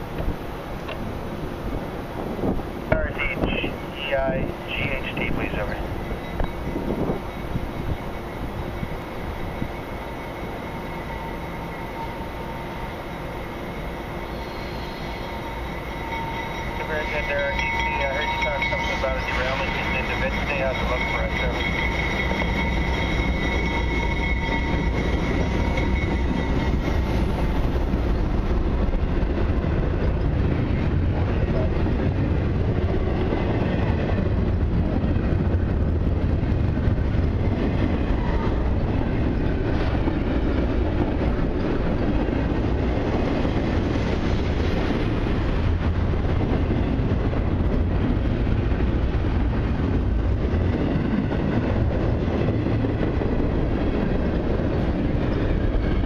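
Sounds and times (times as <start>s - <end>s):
freight train rumbling past: 0.0s - 56.0s
high ringing squeal: 6.0s - 28.3s.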